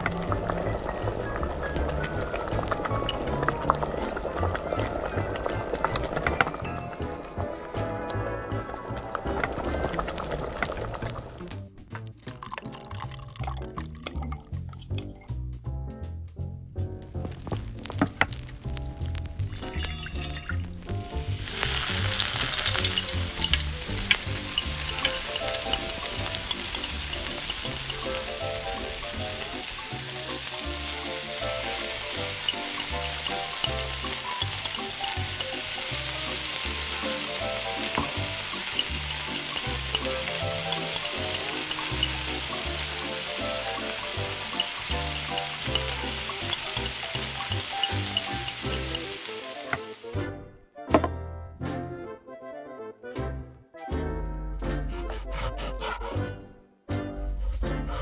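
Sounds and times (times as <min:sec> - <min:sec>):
oil sizzling in frying pan: 0:00.0 - 0:11.6, 0:17.1 - 0:50.2.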